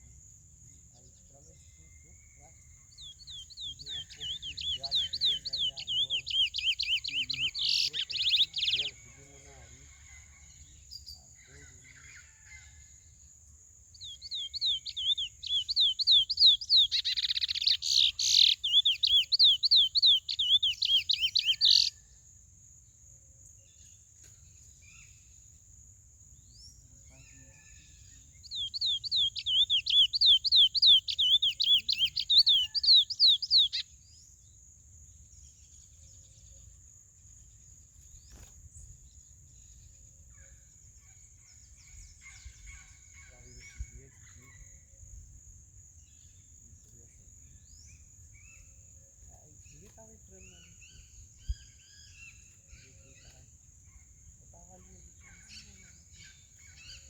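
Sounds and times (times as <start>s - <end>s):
finch singing: 1.0s - 9.8s, 14.0s - 22.0s, 26.6s - 33.9s, 41.6s - 45.2s, 46.0s - 57.0s.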